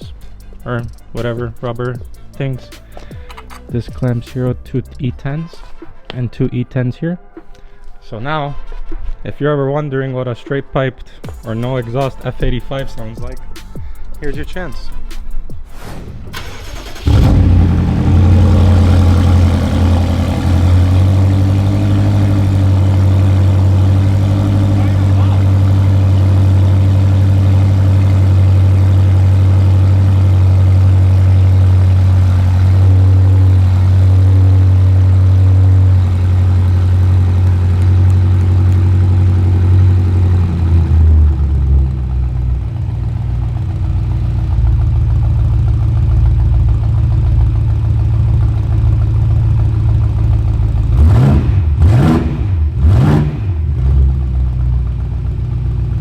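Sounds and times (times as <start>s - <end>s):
car engine idling and revving: 0.0s - 5.1s, 16.3s - 56.0s.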